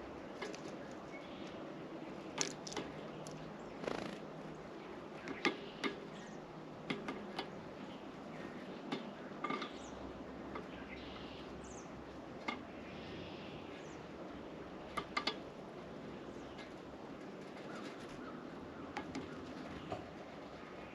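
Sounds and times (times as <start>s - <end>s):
birds pecking at feeder: 0.3s - 4.2s.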